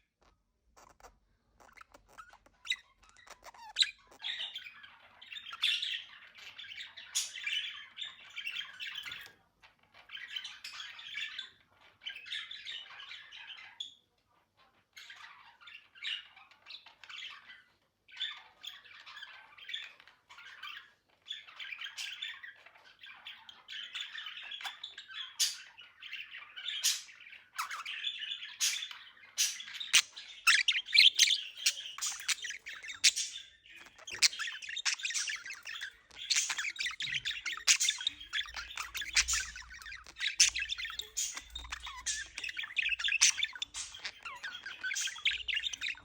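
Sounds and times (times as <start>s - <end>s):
budgerigars warbling and chattering: 0.2s - 46.0s
bird squawks: 23.1s - 46.0s.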